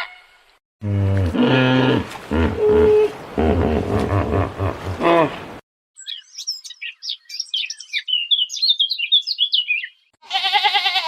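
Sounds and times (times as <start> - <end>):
songbird chirping and trilling: 6.0 - 10.2
bleat: 10.2 - 11.0.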